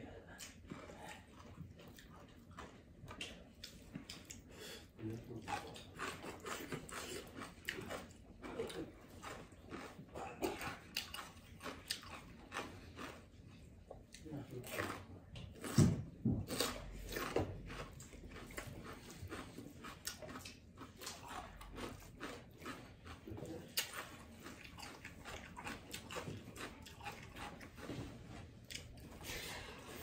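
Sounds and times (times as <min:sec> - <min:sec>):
person chewing with lip smacks: 0:00.2 - 0:04.5, 0:05.1 - 0:30.0.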